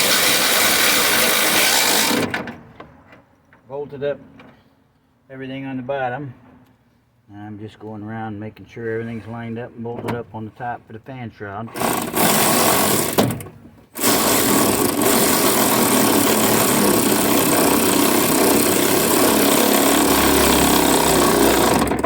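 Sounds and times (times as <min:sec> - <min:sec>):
power driver running: 0:00.0 - 0:02.4, 0:11.8 - 0:13.4, 0:14.0 - 0:22.0.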